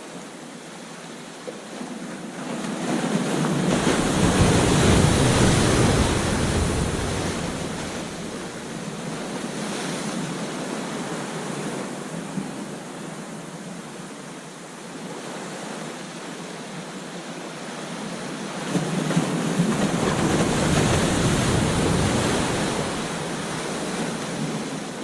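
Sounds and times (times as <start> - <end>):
surf rushing: 2.6 - 12.4, 18.7 - 25.0
ocean wave crashing: 3.5 - 10.1, 19.8 - 25.0.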